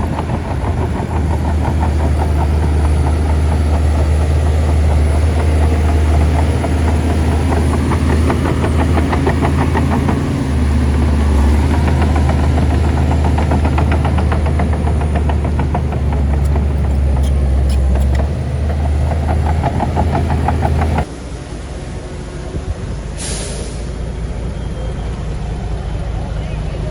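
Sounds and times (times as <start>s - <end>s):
bulldozer diesel engine running: 0.0s - 21.1s
fast even clicking: 0.0s - 21.1s.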